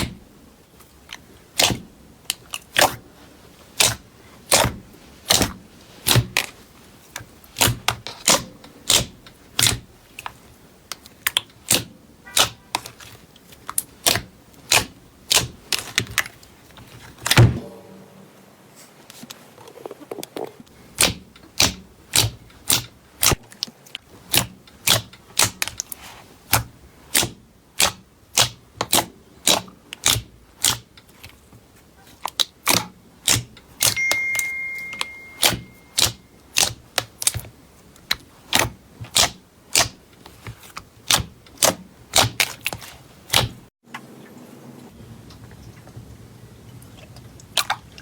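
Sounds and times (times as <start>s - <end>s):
slime popping clicks: 33.3s - 36.1s.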